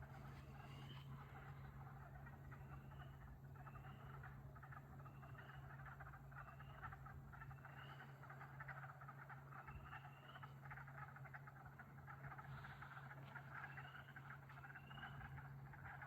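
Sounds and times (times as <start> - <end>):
frog chorus trilling: 0.0 - 16.0
steady low hum: 0.0 - 16.0.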